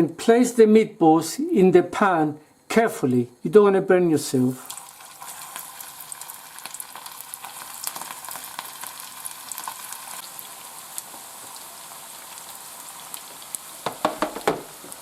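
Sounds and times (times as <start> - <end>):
meatballs sizzling in oil: 4.3 - 15.0.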